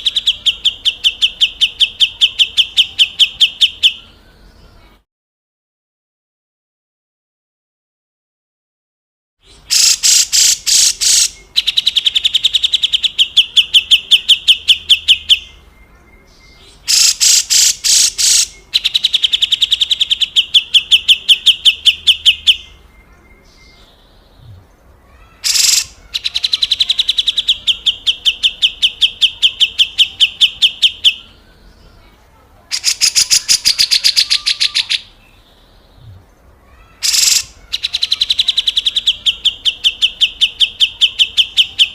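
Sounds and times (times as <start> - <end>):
bird harsh rasping call: 9.5 - 15.6, 16.6 - 22.8, 25.1 - 31.4, 32.7 - 35.2, 36.7 - 41.9.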